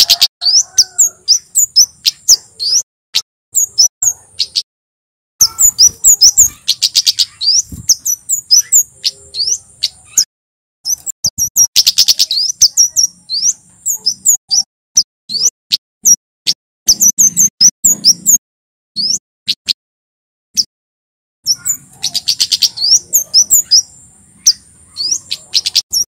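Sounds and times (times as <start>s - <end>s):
bird singing high trills: 0.0s - 2.8s, 3.6s - 4.7s, 5.4s - 15.5s, 19.0s - 19.7s, 21.5s - 26.0s.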